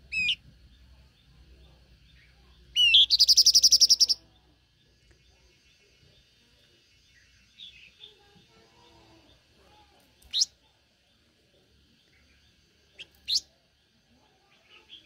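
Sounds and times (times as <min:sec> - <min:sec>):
bird singing a fast high trill: 0:00.0 - 0:00.4, 0:02.7 - 0:04.2.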